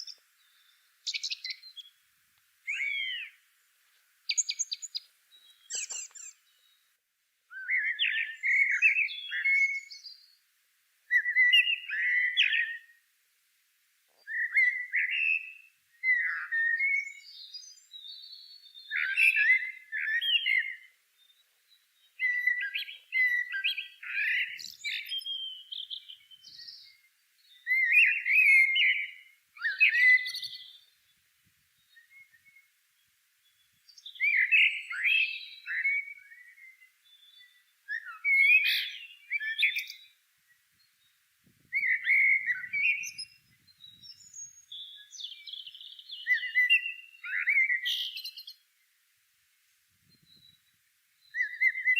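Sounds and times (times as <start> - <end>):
songbird warbling: 0.0 - 2.0, 2.6 - 3.4, 4.3 - 6.8, 7.5 - 10.3, 11.1 - 13.0, 14.2 - 21.4, 22.1 - 31.0, 33.5 - 40.2, 41.7 - 48.6, 51.3 - 51.9.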